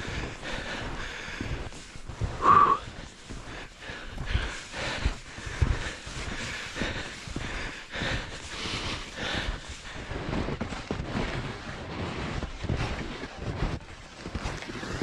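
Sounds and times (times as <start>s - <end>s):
heavy breathing: 0.0s - 10.2s
footsteps through snow: 0.0s - 15.0s.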